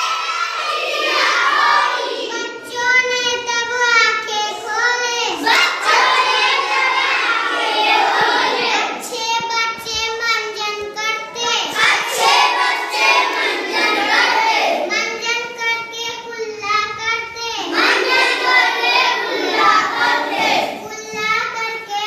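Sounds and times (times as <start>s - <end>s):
children singing: 0.0s - 9.1s, 11.4s - 15.2s, 17.6s - 20.9s.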